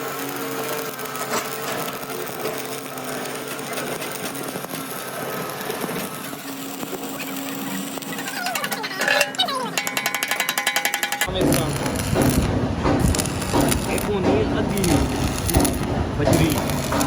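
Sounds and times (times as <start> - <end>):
workshop machinery hum: 0.0 - 17.0
rattling and scraping: 7.8 - 17.0.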